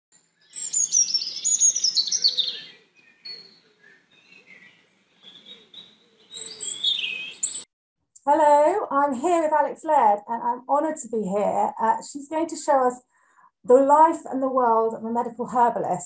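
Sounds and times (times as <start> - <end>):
bird chirping: 0.2 - 7.7.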